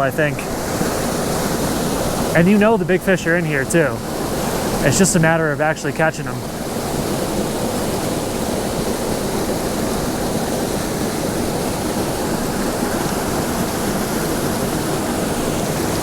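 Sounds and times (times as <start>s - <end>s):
waterfall pouring into pool: 0.1s - 16.0s.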